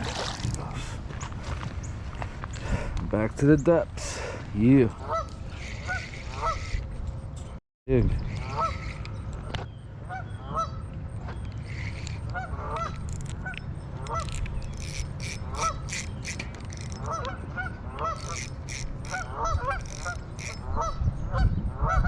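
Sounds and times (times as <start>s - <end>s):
geese honking: 4.9s - 6.8s, 8.3s - 9.2s, 11.6s - 16.0s, 16.8s - 21.0s.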